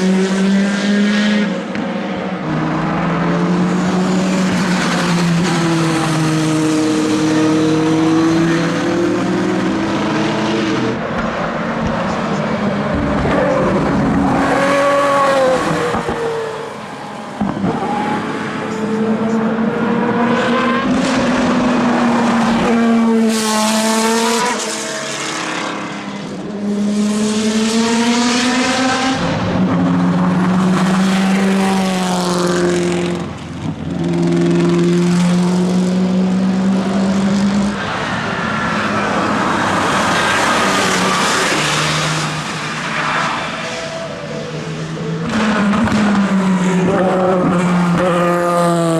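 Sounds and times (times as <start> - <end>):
racing cars passing: 0.0 - 48.9.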